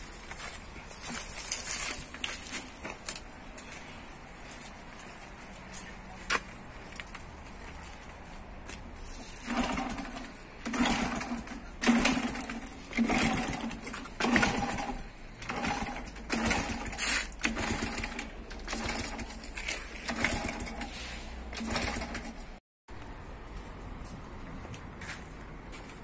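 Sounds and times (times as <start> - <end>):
motorcycle engine being kicked over: 9.3 - 20.9.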